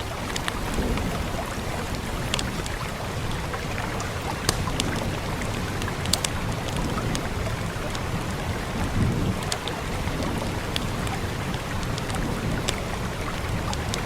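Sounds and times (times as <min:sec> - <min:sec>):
fire crackling and popping: 0:00.0 - 0:14.0
rain hissing: 0:00.0 - 0:14.0.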